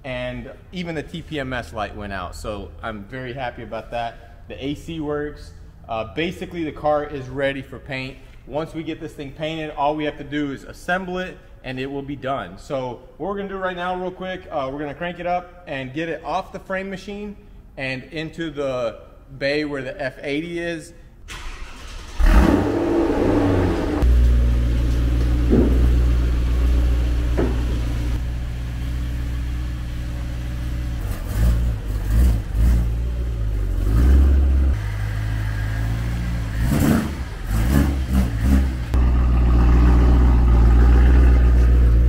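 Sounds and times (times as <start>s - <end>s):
car engine starting and revving: 21.3s - 42.0s.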